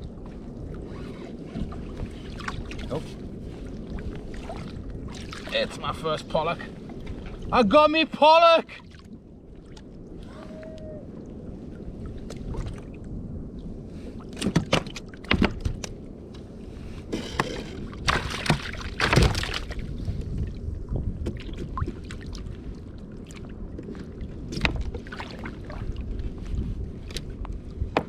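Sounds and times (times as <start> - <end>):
wind and water against hull: 0.0 - 28.0
water splashing: 4.1 - 7.7, 17.4 - 19.9.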